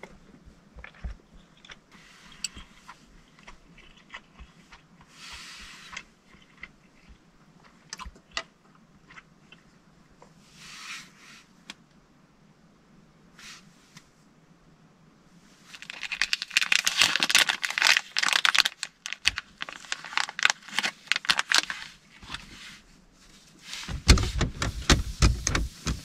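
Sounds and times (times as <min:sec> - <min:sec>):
person chewing: 0:00.8 - 0:09.7.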